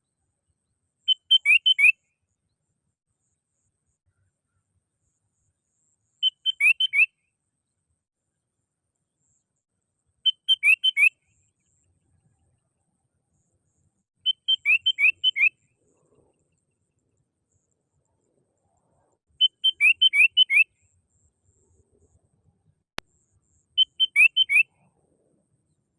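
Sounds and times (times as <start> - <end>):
bird whistling song: 1.1 - 2.1, 6.2 - 7.2, 10.2 - 11.9, 13.4 - 16.4, 19.3 - 20.9, 23.2 - 25.0.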